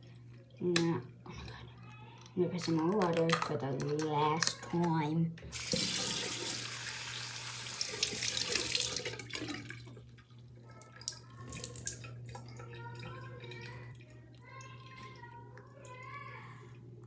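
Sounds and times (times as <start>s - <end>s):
tap water filling balloon: 5.5s - 15.2s.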